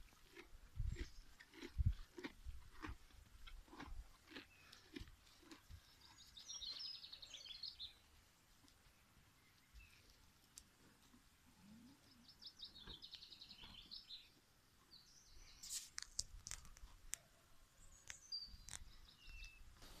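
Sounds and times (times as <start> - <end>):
faint birdsong: 4.4 - 10.6, 11.3 - 20.0.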